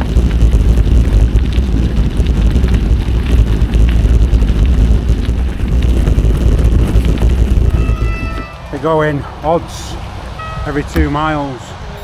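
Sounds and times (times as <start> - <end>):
tyres crackling on wet gravel: 0.0 - 11.6
wind buffeting microphone: 0.0 - 12.0.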